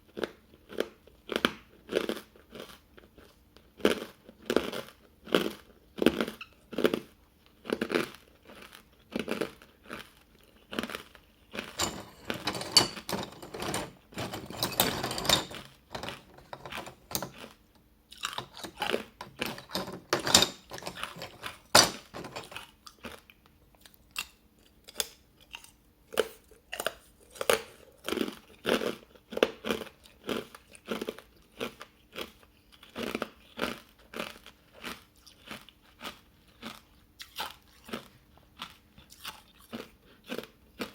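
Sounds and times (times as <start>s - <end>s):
ice being chewed crunching: 29.7s - 40.9s.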